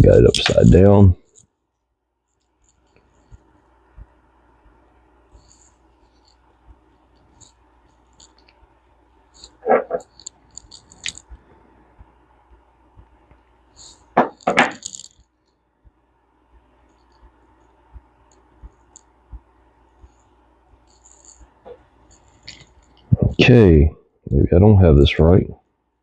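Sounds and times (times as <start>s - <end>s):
small metal parts clicking: 9.4s - 11.3s, 13.8s - 15.6s.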